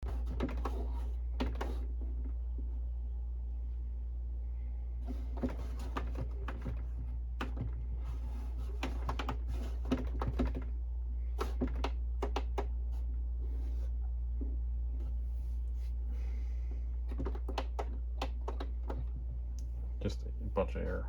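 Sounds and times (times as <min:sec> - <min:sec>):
printer paper feed clicking and rattling: 0:00.0 - 0:01.9, 0:05.1 - 0:10.7, 0:11.4 - 0:12.8, 0:17.1 - 0:19.1.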